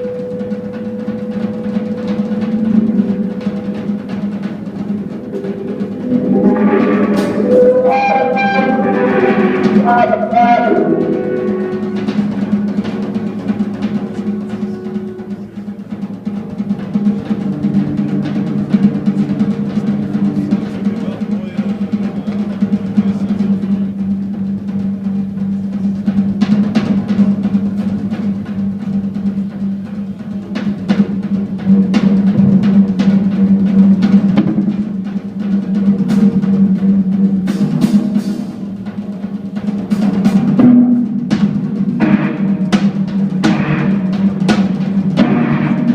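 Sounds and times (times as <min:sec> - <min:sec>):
held low note: 0:00.0 - 0:37.5
drum rolls and cymbal hits: 0:00.0 - 0:45.9
jazz-rock band playing: 0:00.0 - 0:45.9.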